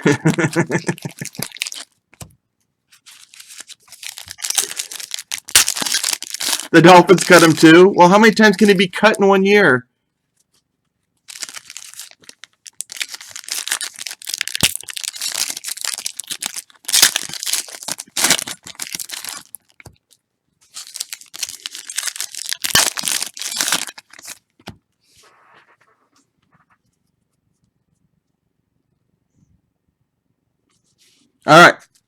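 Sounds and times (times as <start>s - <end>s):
card pack wrappers crinkling: 0.0s - 2.3s, 2.9s - 9.0s, 11.2s - 24.5s.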